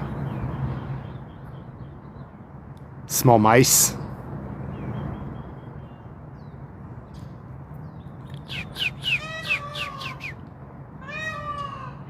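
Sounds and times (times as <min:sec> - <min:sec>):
peafowl calling: 0:08.4 - 0:10.4.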